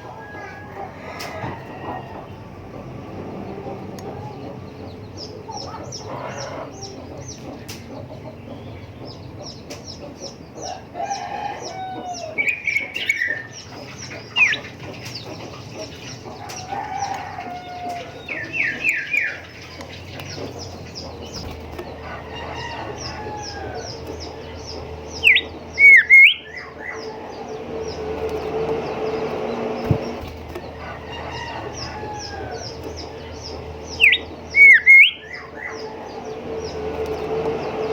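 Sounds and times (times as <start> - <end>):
rapid high bird chirps: 12.1 - 37.9
bird whistled phrases: 25.2 - 26.7, 34.0 - 35.8.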